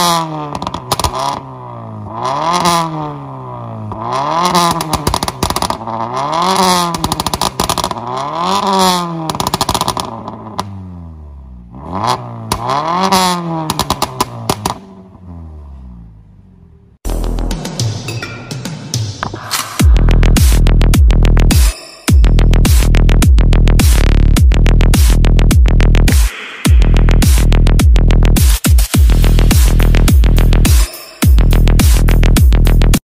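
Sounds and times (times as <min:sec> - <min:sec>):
exhaust pops and bangs: 0:00.0 - 0:01.4, 0:03.9 - 0:10.7, 0:12.5 - 0:14.9
car engine revving: 0:00.0 - 0:33.0.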